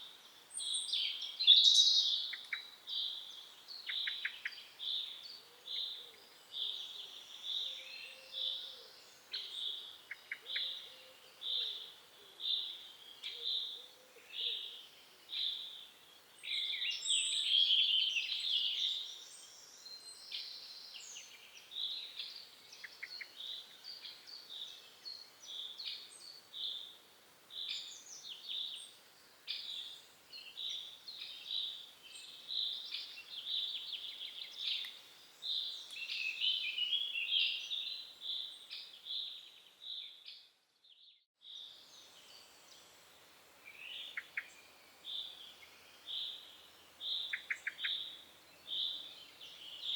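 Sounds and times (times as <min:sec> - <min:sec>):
small birds chirping and singing: 0:00.0 - 0:49.9.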